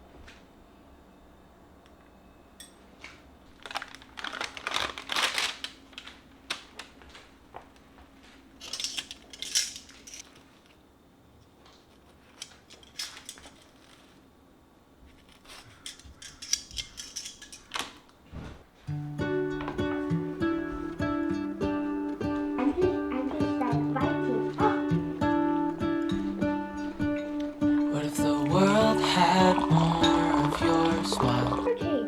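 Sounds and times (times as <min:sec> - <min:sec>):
faint steady hum: 0:00.0 - 0:32.0
small objects clicking and scraping: 0:08.6 - 0:10.6, 0:12.3 - 0:14.2, 0:15.2 - 0:18.0.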